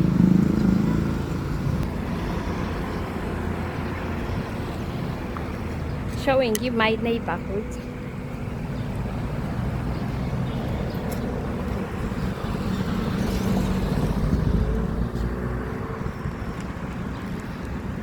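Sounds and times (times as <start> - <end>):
vehicle engine passing: 7.1 - 18.0.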